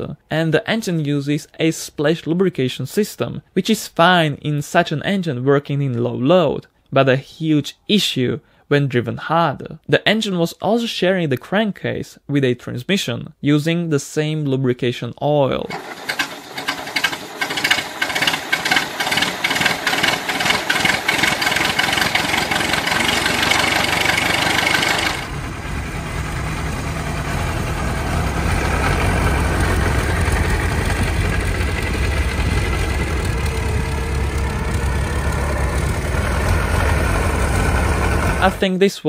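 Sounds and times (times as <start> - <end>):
old car engine running: 15.7 - 38.6.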